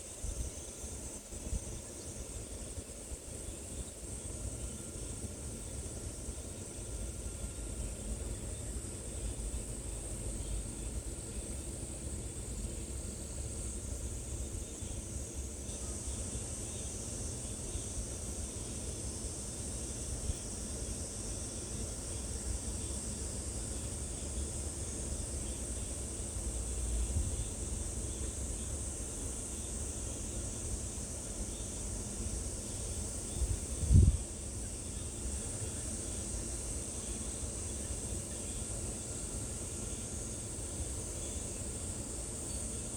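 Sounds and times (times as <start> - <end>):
high insect drone: 0.0 - 42.9
wind rumble on microphone: 33.3 - 34.3.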